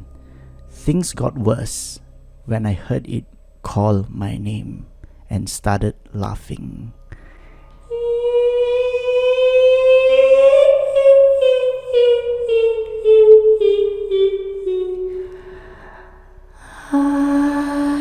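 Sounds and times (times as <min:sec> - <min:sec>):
woman humming a high note: 0:07.9 - 0:15.7.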